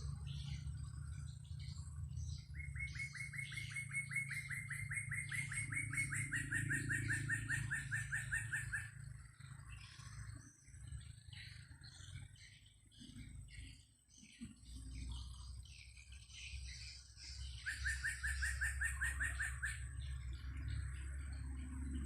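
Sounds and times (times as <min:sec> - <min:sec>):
birds chirping: 0:00.0 - 0:22.0
bird calling rapid repeated notes: 0:02.6 - 0:09.1, 0:17.6 - 0:19.9.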